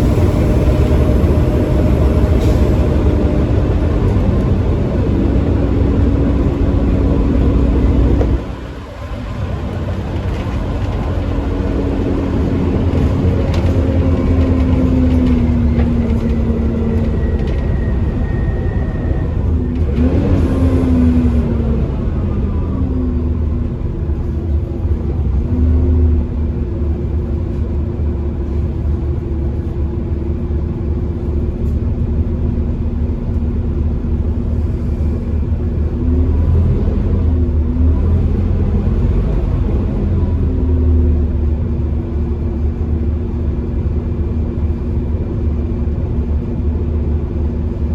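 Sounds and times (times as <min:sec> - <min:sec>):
bus diesel engine accelerating: 0:00.0 - 0:47.9
high engine whine: 0:00.0 - 0:47.9.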